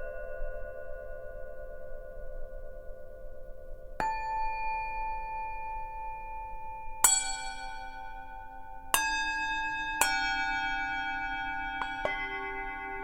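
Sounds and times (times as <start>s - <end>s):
singing bowls ringing: 4.0s - 13.0s.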